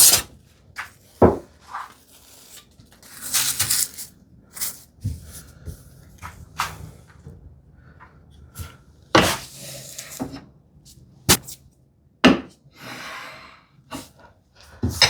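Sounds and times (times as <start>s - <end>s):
knocks and thuds on workbench: 1.2s - 1.5s, 12.2s - 12.5s.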